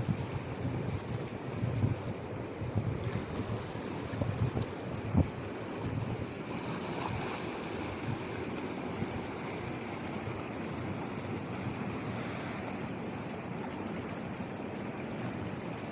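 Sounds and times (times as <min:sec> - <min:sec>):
wind buffeting the microphone: 0:00.0 - 0:13.0
sea waves washing in: 0:00.0 - 0:15.9.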